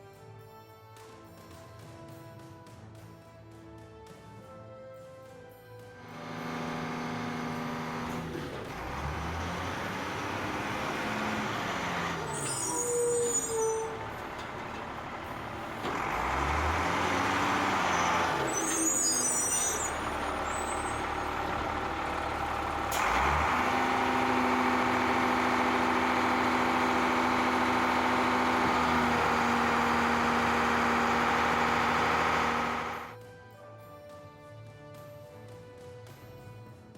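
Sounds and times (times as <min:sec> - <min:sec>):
heavy truck engine revving: 0:06.0 - 0:33.2.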